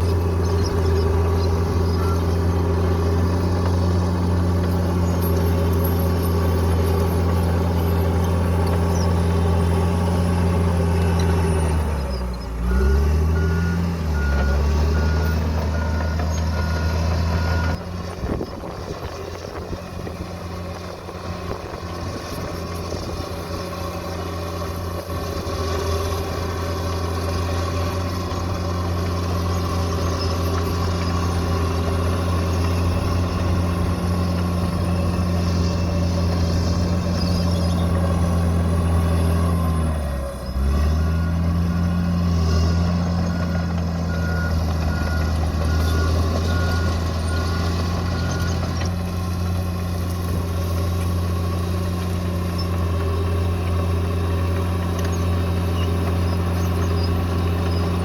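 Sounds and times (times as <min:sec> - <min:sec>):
bulldozer diesel engine running: 0:00.0 - 0:58.0
pulsing reverse warning beep: 0:01.6 - 0:02.4, 0:11.0 - 0:17.8, 0:40.9 - 0:48.8.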